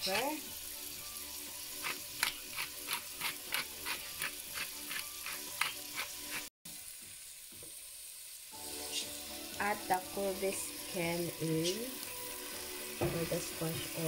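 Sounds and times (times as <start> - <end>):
vegetables sizzling in a pot: 0.0 - 14.0
pepper mill grinding: 1.6 - 6.5.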